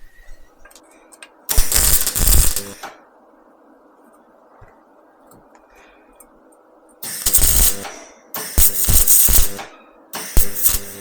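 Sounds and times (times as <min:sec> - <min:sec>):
welding arc crackling and hissing: 0:01.5 - 0:02.9, 0:07.0 - 0:11.0.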